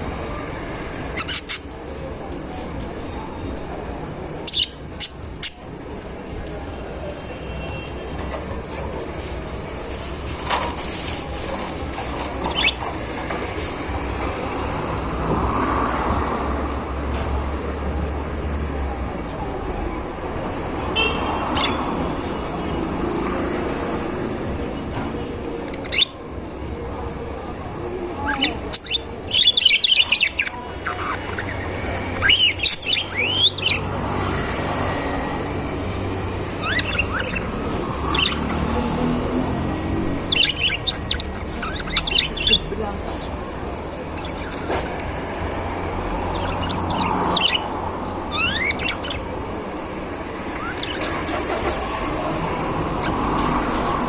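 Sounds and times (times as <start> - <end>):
budgerigars chirping: 1.0 - 2.0, 4.4 - 5.7, 10.4 - 14.7, 21.0 - 22.6, 25.6 - 26.2, 28.2 - 54.0
budgerigar chirp: 1.1 - 1.8, 28.3 - 34.0, 36.4 - 38.9, 40.2 - 43.4, 46.2 - 49.3.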